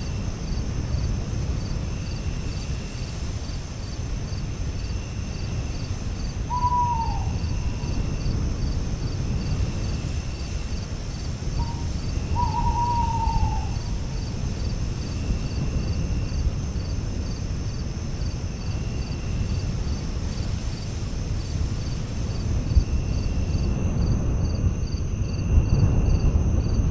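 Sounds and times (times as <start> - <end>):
high insect trill: 0.0 - 25.5
crickets chirping: 0.0 - 26.8
low rumble of breeze: 0.0 - 26.9
bird falling call: 6.4 - 8.0, 11.6 - 14.3.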